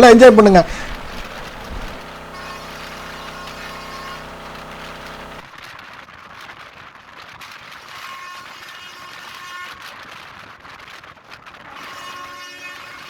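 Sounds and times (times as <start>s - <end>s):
train pitched drone: 0.0s - 5.4s.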